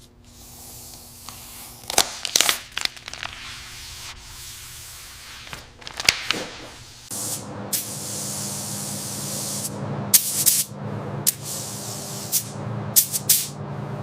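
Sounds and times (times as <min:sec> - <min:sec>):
low hum: 0:07.1 - 0:14.0.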